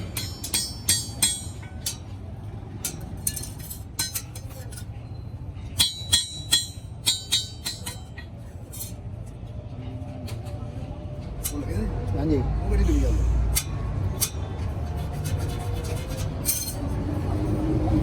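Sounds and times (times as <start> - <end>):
metallic clinks and taps: 2.8 - 5.0, 5.6 - 9.0, 15.3 - 17.0.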